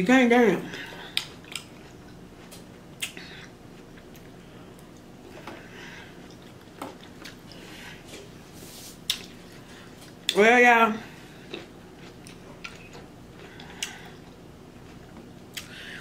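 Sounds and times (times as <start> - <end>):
quiet chewing of fruit: 0.8 - 8.3, 9.0 - 10.4, 11.2 - 16.0.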